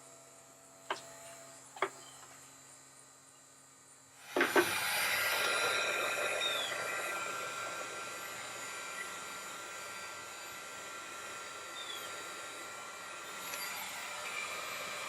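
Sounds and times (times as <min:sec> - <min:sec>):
hot-air blower running: 0:04.2 - 0:15.0.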